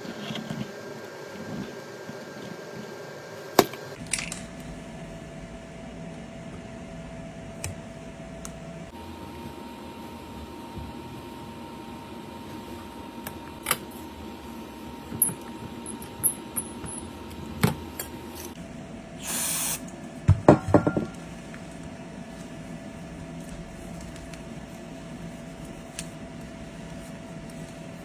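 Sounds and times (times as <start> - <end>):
steady low hum: 0.0 - 28.0
spray hiss: 19.2 - 19.8.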